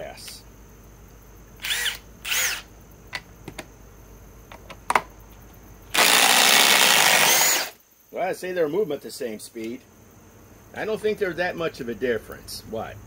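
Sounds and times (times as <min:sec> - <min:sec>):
impact driver running: 0:06.0 - 0:07.8.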